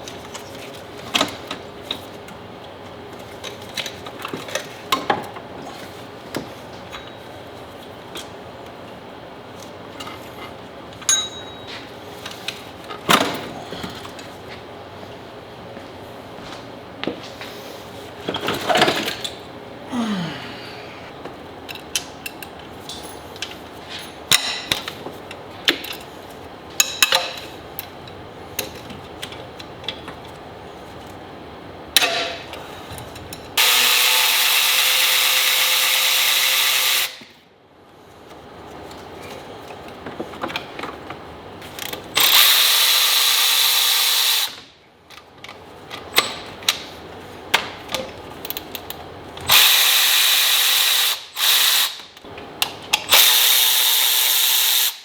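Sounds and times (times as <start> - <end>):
clatter of tools and parts: 18.2 - 19.4, 21.7 - 26.1
power tool motor whine: 33.6 - 37.2.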